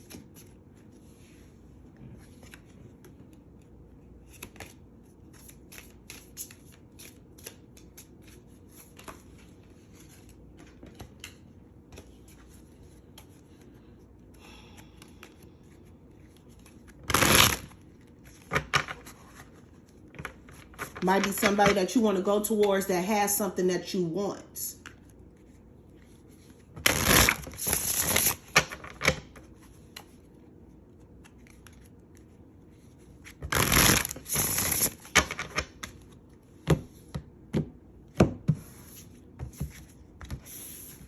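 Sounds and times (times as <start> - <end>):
cards being shuffled: 2.0 - 14.0, 14.8 - 21.8, 24.8 - 36.4.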